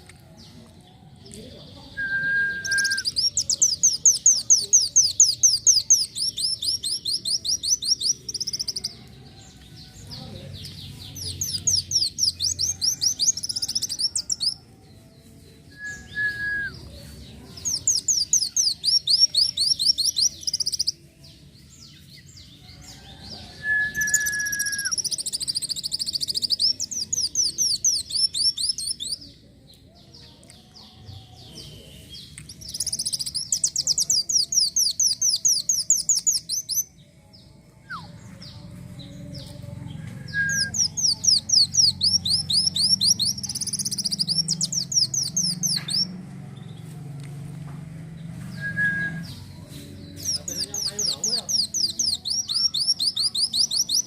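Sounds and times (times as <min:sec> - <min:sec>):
bird singing rapid high trills: 0:02.2 - 0:08.9, 0:23.8 - 0:29.2, 0:40.5 - 0:46.2, 0:50.2 - 0:54.0.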